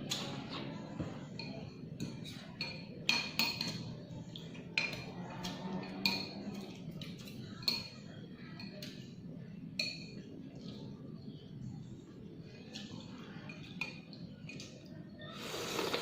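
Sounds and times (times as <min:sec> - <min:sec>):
spoon clinking against bowl: 0:01.4 - 0:08.0.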